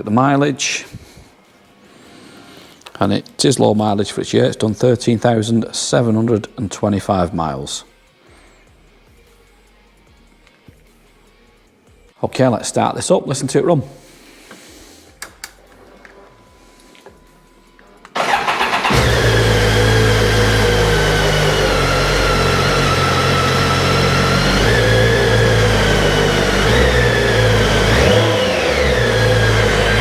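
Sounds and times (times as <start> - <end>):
motorcycle engine starting: 18.1 - 30.0
motorcycle engine idling: 18.2 - 30.0.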